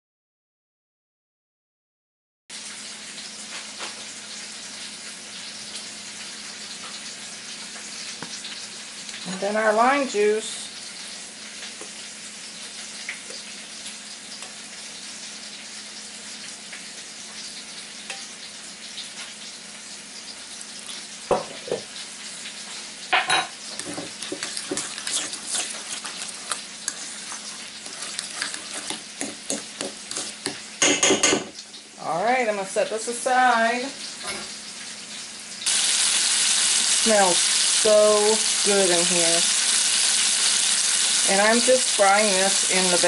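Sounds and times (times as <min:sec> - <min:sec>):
chicken sizzling in grease: 0:02.5 - 0:43.0
metal spoon scraping a bowl: 0:23.7 - 0:30.6.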